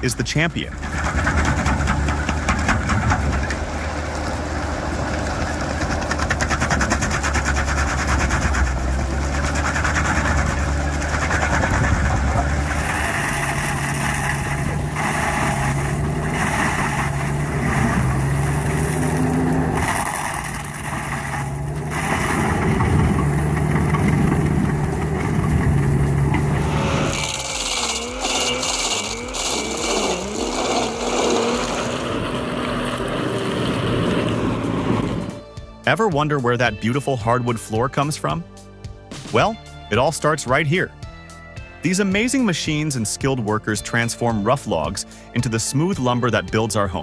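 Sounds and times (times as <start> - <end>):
stump grinder engine running: 0.0 - 35.5.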